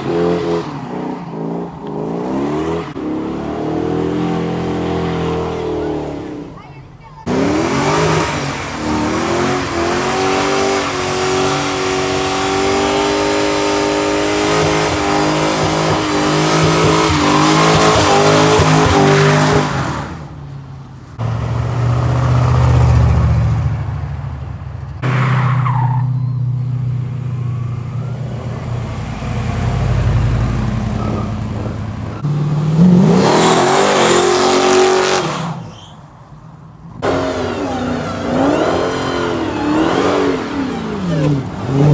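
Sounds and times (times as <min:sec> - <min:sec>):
engine revving: 0:07.2 - 0:20.4, 0:21.2 - 0:24.4, 0:26.6 - 0:35.7, 0:37.0 - 0:41.9
car engine running: 0:07.2 - 0:25.2, 0:26.4 - 0:35.2, 0:37.0 - 0:41.9
passing cars rumbling: 0:07.2 - 0:41.9.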